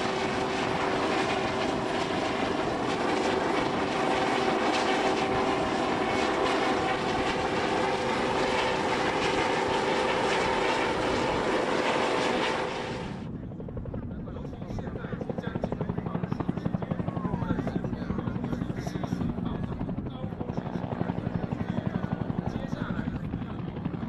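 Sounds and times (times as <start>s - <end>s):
aircraft engine drone: 0.0s - 24.0s.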